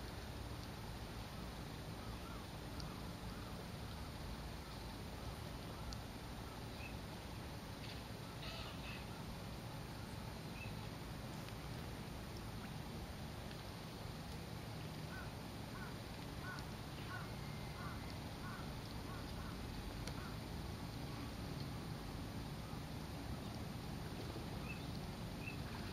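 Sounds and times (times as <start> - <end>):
birds calling: 15.1 - 19.6.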